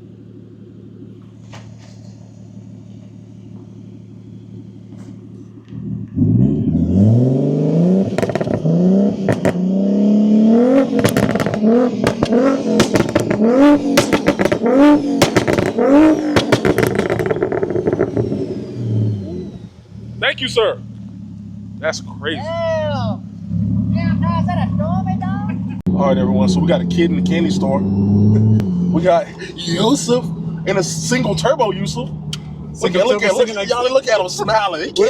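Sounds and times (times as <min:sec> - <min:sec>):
car engine idling and revving: 0:00.0 - 0:35.0
exhaust cracks and pops: 0:08.1 - 0:09.6, 0:10.9 - 0:18.6.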